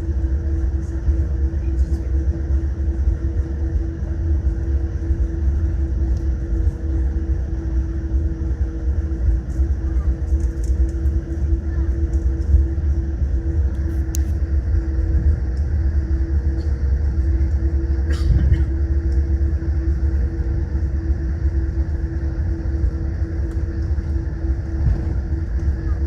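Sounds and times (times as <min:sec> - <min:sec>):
aircraft cabin rumble and hum: 0:00.0 - 0:26.0.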